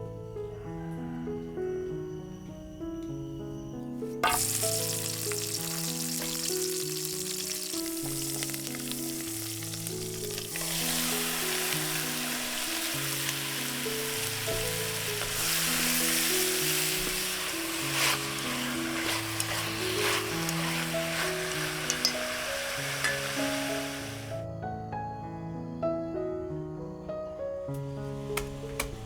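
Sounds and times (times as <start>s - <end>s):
soft background music: 0.0s - 29.0s
food sizzling in hot oil: 4.2s - 24.4s.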